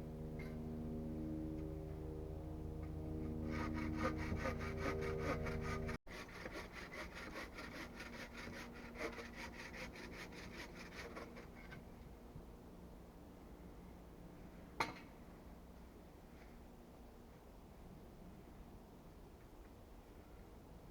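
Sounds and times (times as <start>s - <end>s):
hand saw cutting wood: 3.3s - 11.8s.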